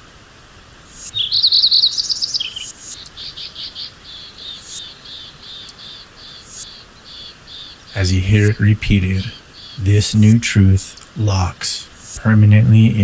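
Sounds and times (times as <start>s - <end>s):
bird chirping: 0.9s - 13.0s
short repeated bird notes: 1.0s - 8.0s.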